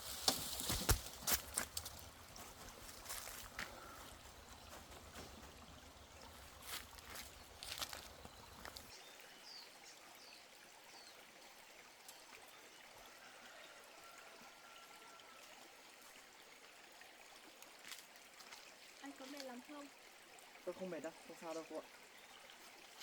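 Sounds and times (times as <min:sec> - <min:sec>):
running water: 0:00.0 - 0:23.0.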